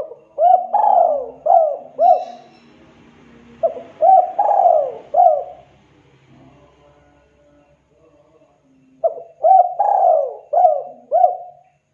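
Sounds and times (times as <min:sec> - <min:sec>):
dove cooing: 0:00.0 - 0:02.7, 0:03.4 - 0:05.8, 0:09.0 - 0:11.6.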